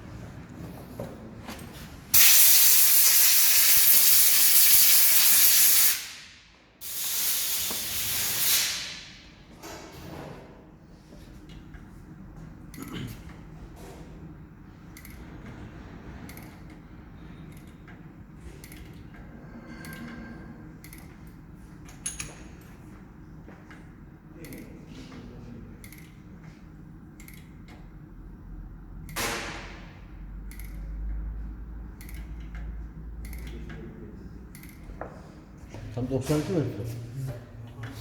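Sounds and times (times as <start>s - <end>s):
short loud hiss: 2.2s - 9.2s
metal tools clicking and knocking: 21.9s - 22.7s.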